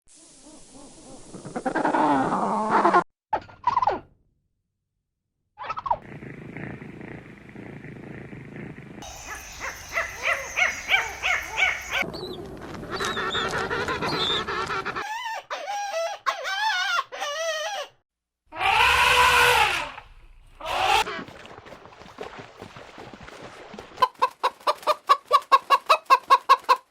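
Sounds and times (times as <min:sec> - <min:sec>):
farm animals calling: 0:09.0 - 0:12.1, 0:12.8 - 0:15.0.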